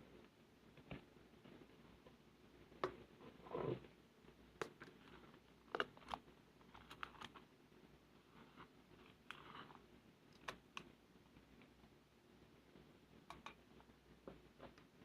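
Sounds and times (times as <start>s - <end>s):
small clicks and pops: 10.3s - 11.8s, 13.2s - 15.0s.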